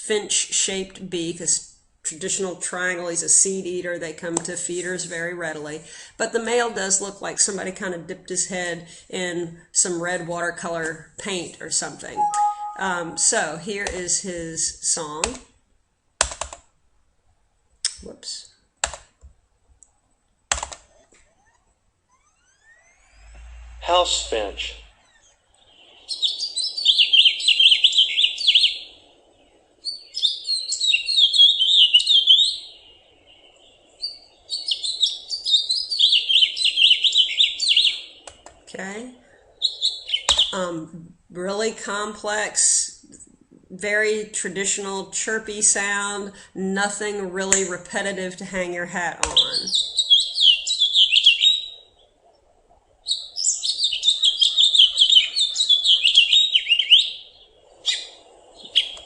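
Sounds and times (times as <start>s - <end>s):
finch singing: 12.2s - 13.3s, 24.8s - 28.9s, 29.9s - 32.8s, 34.0s - 38.2s, 39.6s - 40.6s, 49.3s - 51.8s, 53.0s - 59.0s.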